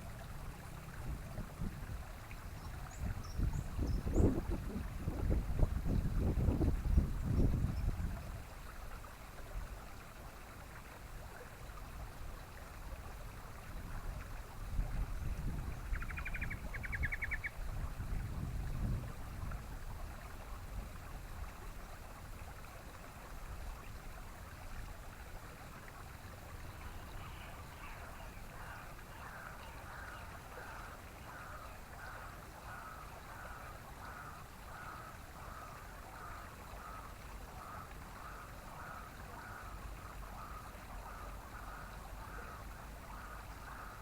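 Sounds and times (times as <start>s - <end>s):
wind on microphone: 0.9s - 8.5s, 13.8s - 21.5s.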